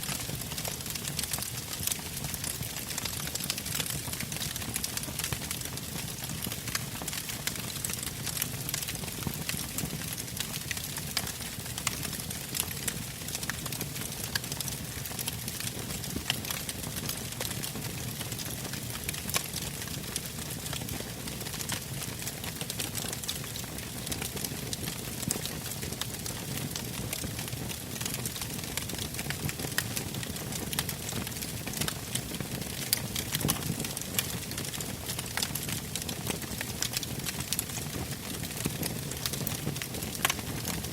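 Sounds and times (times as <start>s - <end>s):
burning logs crackling and popping: 0.0s - 40.9s
low rumble of flames: 0.1s - 40.9s.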